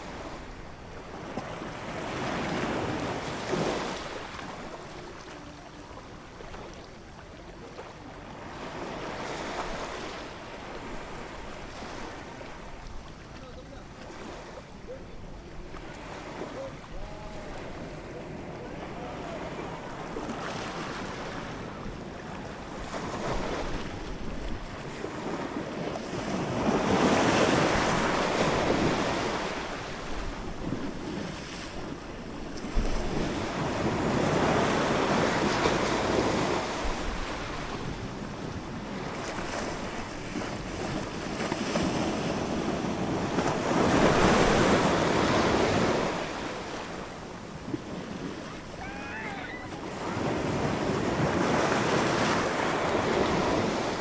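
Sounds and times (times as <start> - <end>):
ocean waves washing in: 33.0 - 54.0.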